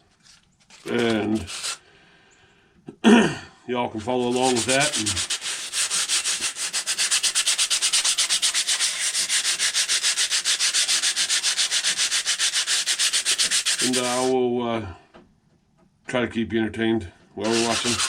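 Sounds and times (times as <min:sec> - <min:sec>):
sandpaper scratching metal: 0:00.1 - 0:01.8, 0:03.9 - 0:14.3, 0:17.4 - 0:18.0.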